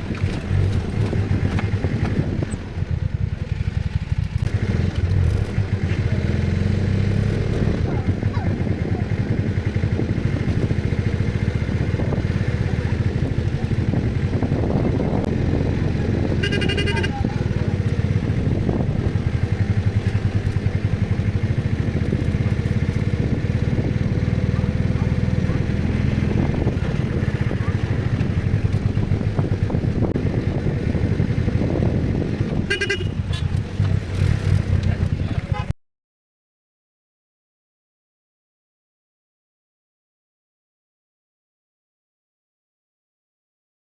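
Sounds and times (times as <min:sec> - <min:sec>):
vehicle engine running: 0:00.0 - 0:35.7
vehicle horn toot: 0:16.3 - 0:17.4, 0:32.6 - 0:33.6, 0:35.5 - 0:35.7.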